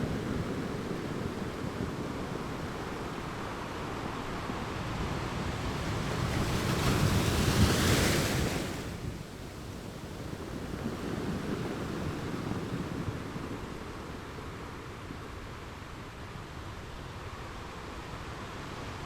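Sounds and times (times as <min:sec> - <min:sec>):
ocean waves breaking: 0:00.0 - 0:14.4.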